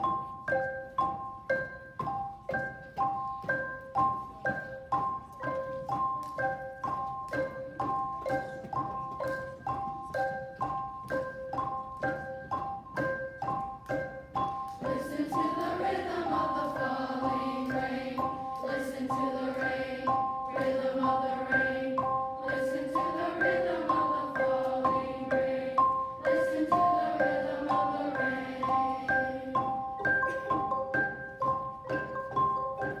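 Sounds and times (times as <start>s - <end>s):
mallet percussion notes: 0.0s - 33.0s
voices singing: 14.8s - 29.8s.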